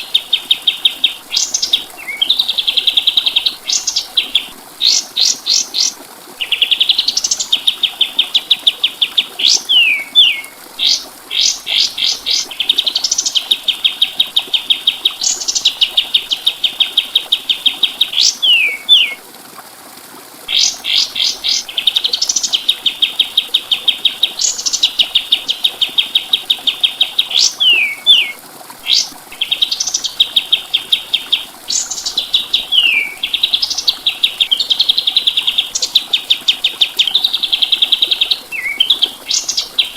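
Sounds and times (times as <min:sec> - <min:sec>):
songbird singing trills: 0:00.0 - 0:19.2, 0:20.5 - 0:39.9.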